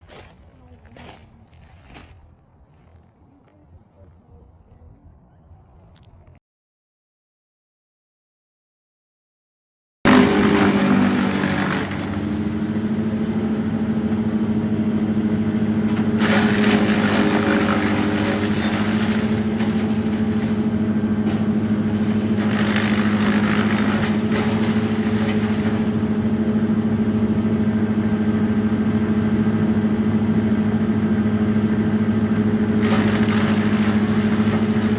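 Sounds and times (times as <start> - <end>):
large engine running: 10.1 - 34.9.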